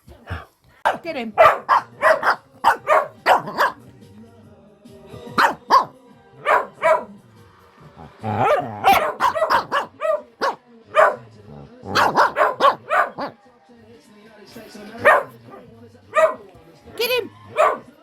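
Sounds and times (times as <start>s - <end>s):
dogs barking: 0.3s - 3.8s, 5.4s - 7.2s, 8.0s - 13.4s, 14.8s - 18.0s.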